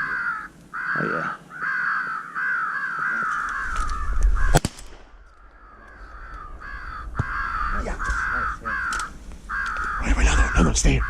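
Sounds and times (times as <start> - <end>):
crows cawing: 0.0 - 11.0
shotgun shot: 4.5 - 5.2.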